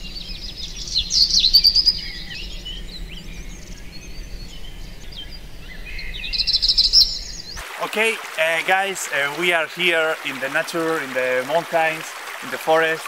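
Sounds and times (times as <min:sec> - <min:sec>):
small birds chirping and trilling: 0:00.0 - 0:07.6.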